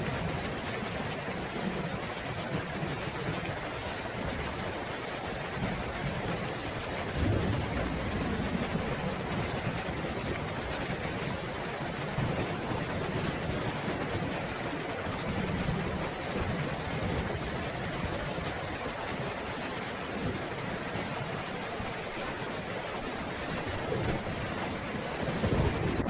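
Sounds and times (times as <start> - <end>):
heavy rain hissing: 2.7 - 26.0
distant thunder rumble: 7.0 - 14.3, 23.9 - 26.0.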